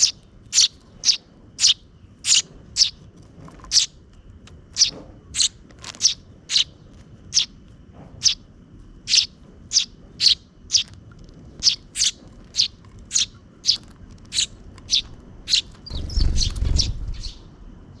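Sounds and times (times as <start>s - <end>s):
sparrows chirping: 0.0s - 3.0s, 3.6s - 4.0s, 4.7s - 7.6s, 8.2s - 18.0s
low rumble: 7.9s - 18.0s.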